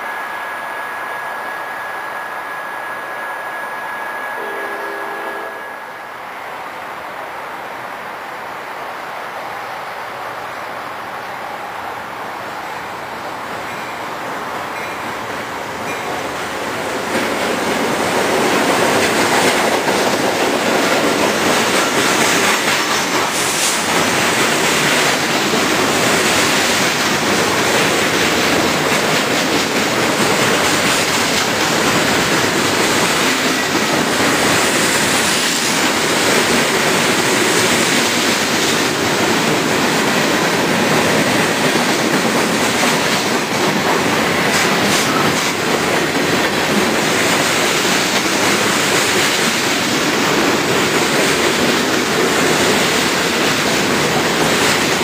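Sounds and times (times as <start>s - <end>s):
freight train passing: 0.0s - 55.0s
wheels rattling on rails: 13.3s - 55.0s.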